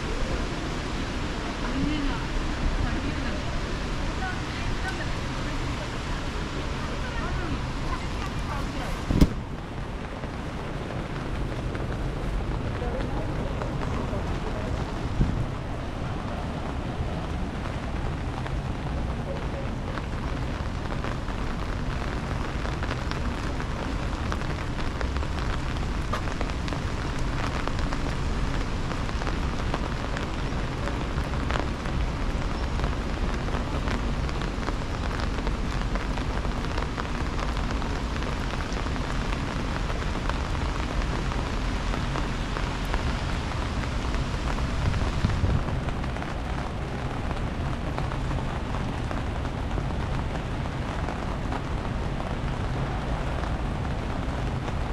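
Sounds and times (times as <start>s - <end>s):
rain falling: 0.0s - 54.9s.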